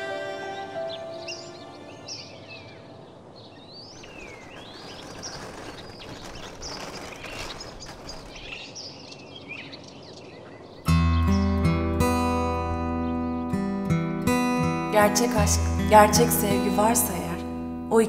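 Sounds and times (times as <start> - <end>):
birds chirping: 0.0 - 18.0
outdoor background hiss: 0.0 - 18.0
strummed guitar: 10.9 - 18.0.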